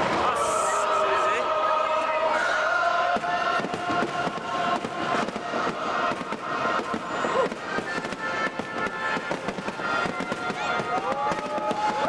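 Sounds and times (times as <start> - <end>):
music: 0.0 - 12.0
fireworks bangs and crackles: 3.0 - 12.0.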